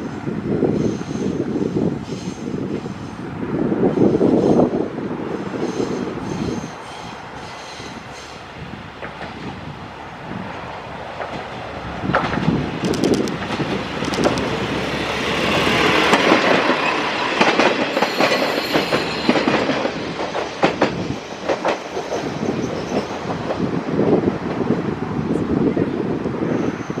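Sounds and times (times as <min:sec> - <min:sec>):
railcar wheels clacking: 0:05.4 - 0:09.7, 0:10.4 - 0:24.8.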